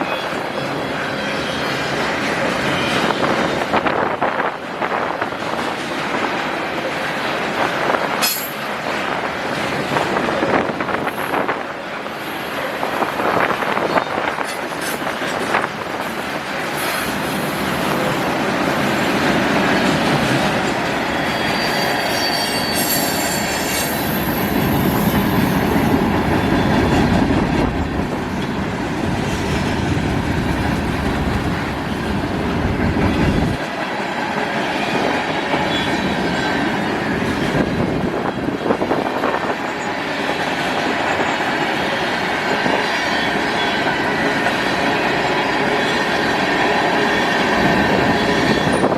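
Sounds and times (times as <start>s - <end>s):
wheel squeal: 21.0s - 27.2s
freight cars rolling past: 22.6s - 33.6s.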